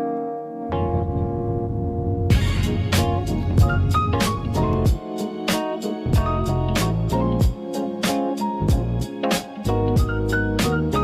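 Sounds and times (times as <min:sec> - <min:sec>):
held music chord: 0:00.0 - 0:11.0
drum beat: 0:02.3 - 0:10.8.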